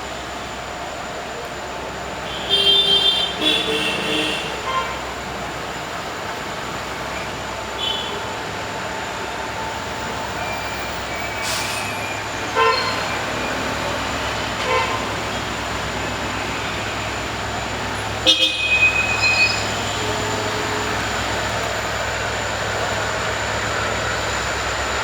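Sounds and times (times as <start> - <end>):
traffic rumble: 0.0 - 25.0
vehicle horns tooting: 2.2 - 5.2, 7.8 - 8.3, 12.4 - 13.4, 14.6 - 15.5, 18.0 - 21.0.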